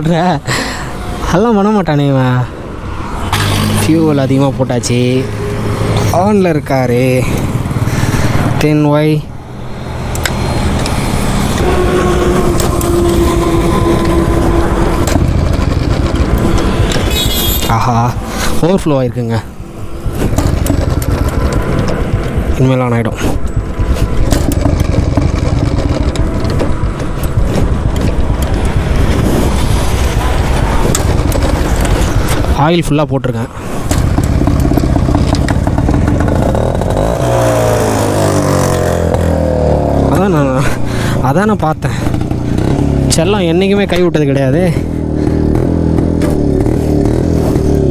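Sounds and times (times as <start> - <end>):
motorcycle engine rumbling: 0.0 - 47.9
steady higher tone: 11.4 - 18.3.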